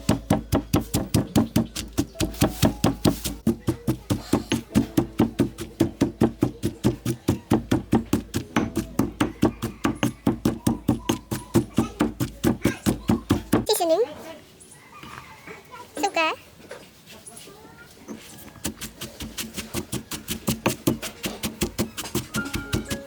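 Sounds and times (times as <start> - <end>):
knife chopping on wooden board: 0.0 - 13.7, 18.6 - 23.0.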